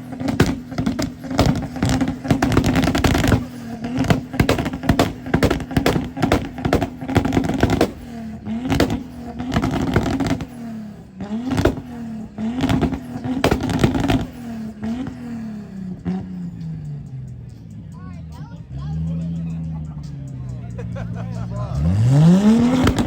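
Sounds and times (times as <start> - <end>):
crackling exhaust pops: 0.0 - 10.8, 11.4 - 15.3, 22.5 - 23.0
car engine revving: 0.0 - 23.0.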